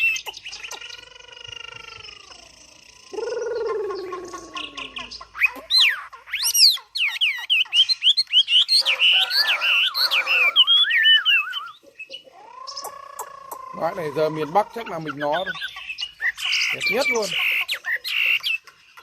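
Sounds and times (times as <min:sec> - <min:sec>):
low warbling bird: 0:00.0 - 0:18.4
low bird call: 0:00.0 - 0:18.6
songbird singing whistled notes: 0:00.0 - 0:19.0.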